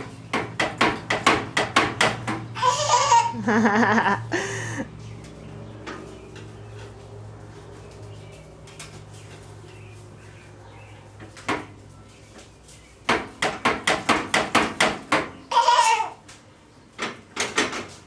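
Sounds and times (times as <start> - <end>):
sharp knocks: 0.3 - 2.5, 13.1 - 15.4.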